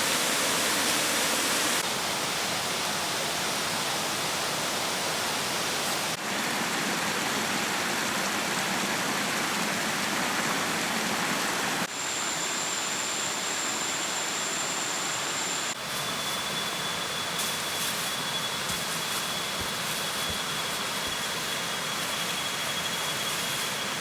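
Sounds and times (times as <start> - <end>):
thin high whine: 11.9 - 24.0.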